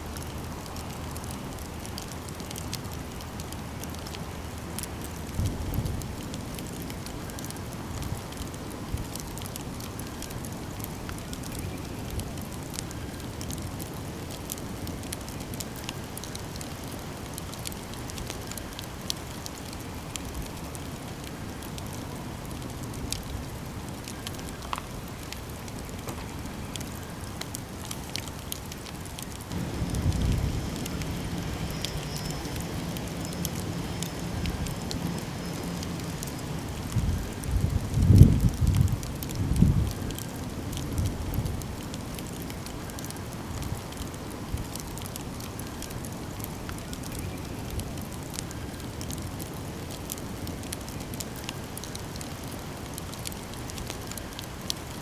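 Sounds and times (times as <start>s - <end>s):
campfire crackling and popping: 0.0s - 55.0s
steady low hum: 29.5s - 38.2s.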